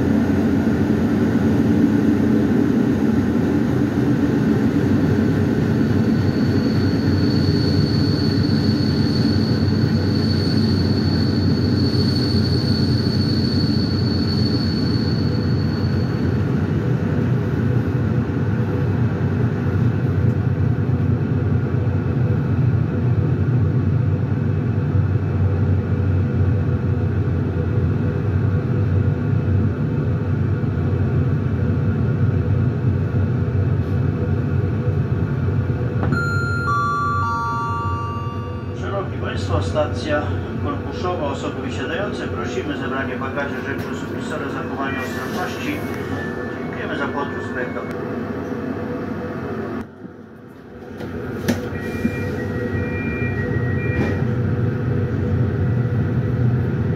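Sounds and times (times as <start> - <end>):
train wheels rumbling on track: 0.0 - 56.9
thin high whine: 36.1 - 39.4.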